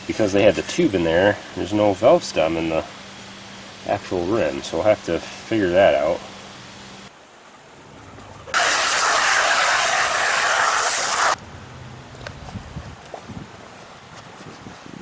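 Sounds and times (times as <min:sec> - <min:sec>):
spray hissing: 0:08.6 - 0:11.4.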